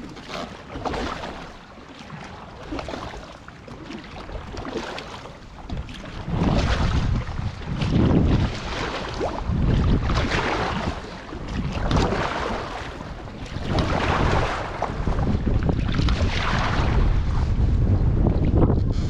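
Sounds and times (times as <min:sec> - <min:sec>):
paddle strokes splashing water: 0:00.0 - 0:17.5
wind buffeting microphone: 0:04.2 - 0:19.0.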